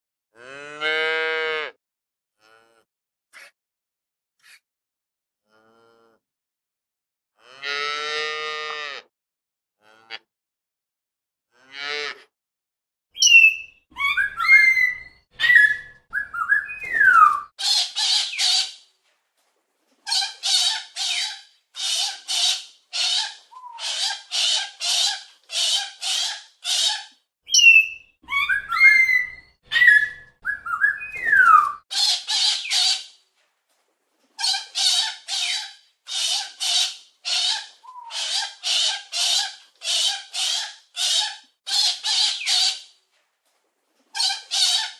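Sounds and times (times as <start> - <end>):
parrot whistles and squawks: 13.2 - 18.8, 20.1 - 33.1, 34.4 - 42.9.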